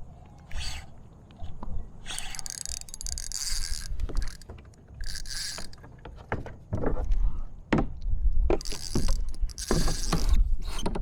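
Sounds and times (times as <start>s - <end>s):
fishing reel clicking and whirring: 0.5s - 0.9s, 2.0s - 5.8s, 8.6s - 10.4s.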